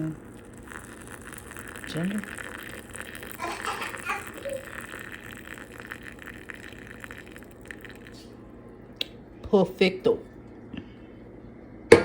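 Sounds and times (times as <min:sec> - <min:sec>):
water pouring into cup: 0:00.0 - 0:08.4.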